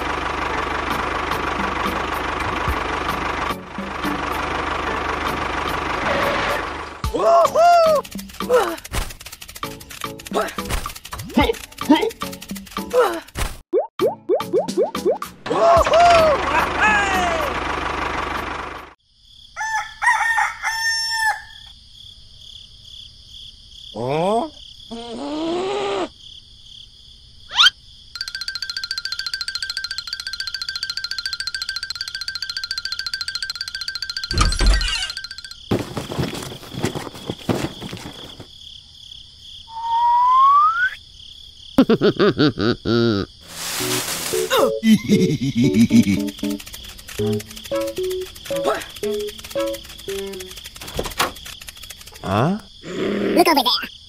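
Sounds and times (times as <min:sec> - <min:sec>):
insect-like chirring: 0:07.4 - 0:13.3, 0:27.4 - 0:42.0, 0:43.1 - 0:54.0
rooster crowing: 0:19.6 - 0:21.7
rising whistle: 0:39.7 - 0:41.0
short hiss: 0:43.4 - 0:44.7.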